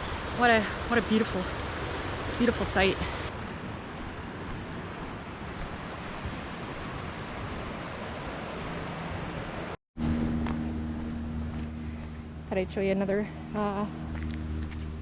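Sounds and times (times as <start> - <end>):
waterfall roaring: 0.0 - 9.8
steady low hum: 8.9 - 15.0.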